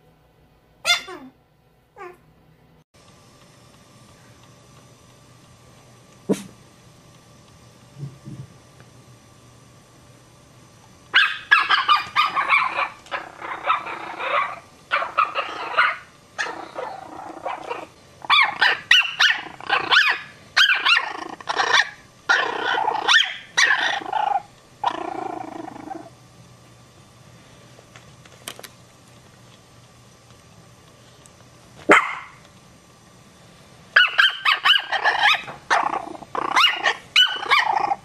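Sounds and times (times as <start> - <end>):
puppies barking and growling: 0.9 - 1.3, 11.2 - 26.1, 34.0 - 38.0.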